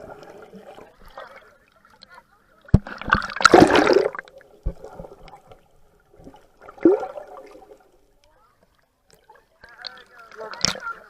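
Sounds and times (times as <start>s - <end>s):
sea water splashing and gurgling: 2.7s - 8.1s.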